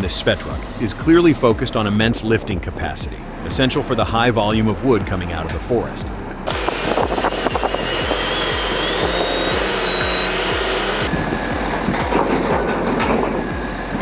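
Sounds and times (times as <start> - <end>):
background music beat: 0.0 - 12.7
heavy machine noise: 0.0 - 14.0.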